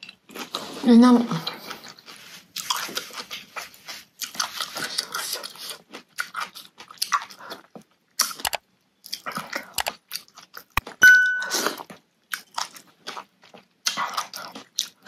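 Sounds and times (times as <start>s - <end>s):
food chewed and crunched: 0.0s - 15.0s.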